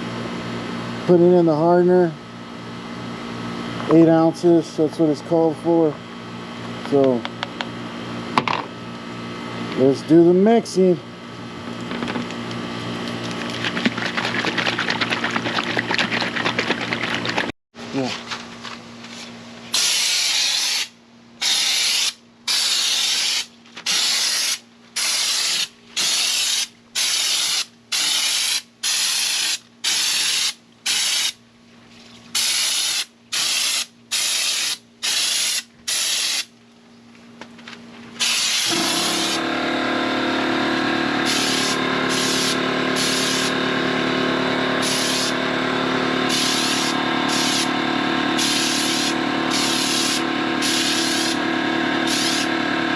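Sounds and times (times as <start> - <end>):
machine hum: 37.5 - 52.9
spray gun hissing: 38.2 - 39.4, 41.2 - 43.5, 44.8 - 45.3, 46.3 - 47.7, 48.4 - 51.4, 52.0 - 52.5.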